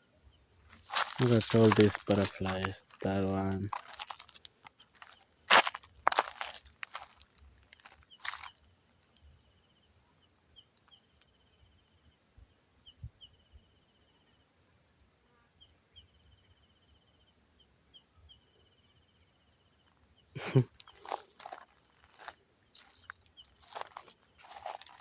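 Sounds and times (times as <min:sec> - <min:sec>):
footsteps on dry forest litter: 0:00.7 - 0:08.6, 0:20.5 - 0:25.0.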